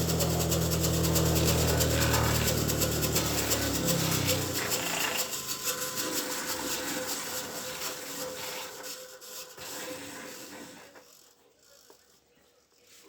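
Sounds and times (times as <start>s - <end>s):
abrasive rubbing strokes: 0.0s - 11.2s.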